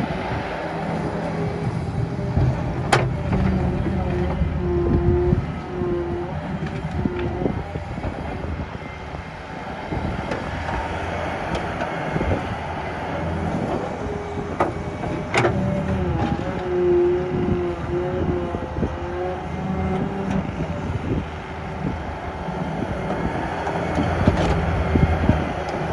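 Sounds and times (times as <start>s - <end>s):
diesel engine under load: 0.0s - 25.9s
hydraulic whine: 0.0s - 25.9s.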